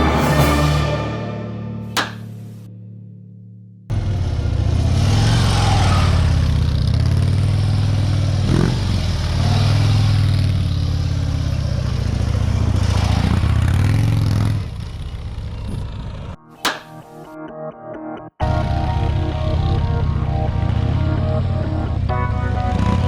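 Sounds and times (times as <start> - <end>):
motorcycle engine running: 3.9 - 16.4, 18.4 - 23.0.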